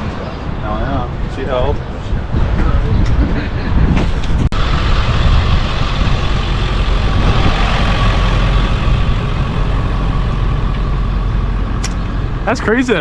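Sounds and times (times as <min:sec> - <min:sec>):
engine running: 0:04.1 - 0:13.0
single click: 0:11.8 - 0:12.0.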